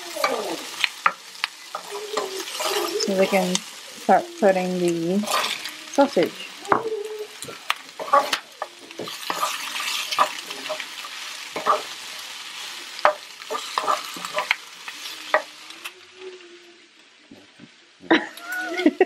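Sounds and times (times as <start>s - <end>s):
sausage and onions sizzling in pan: 0.0s - 19.0s
wooden spoon scraping pan: 0.2s - 3.6s, 5.2s - 12.0s, 13.0s - 14.6s.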